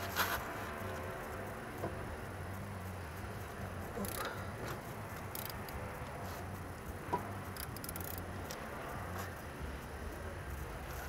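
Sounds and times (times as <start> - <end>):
steady low hum: 0.0 - 11.0
wrench clicking: 3.9 - 6.1, 7.3 - 8.7.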